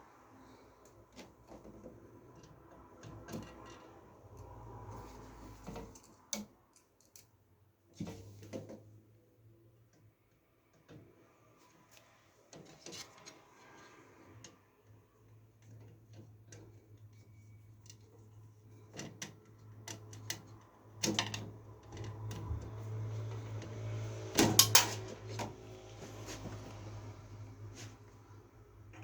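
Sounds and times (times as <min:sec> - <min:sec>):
computer parts clicking and knocking: 0:24.4 - 0:25.0.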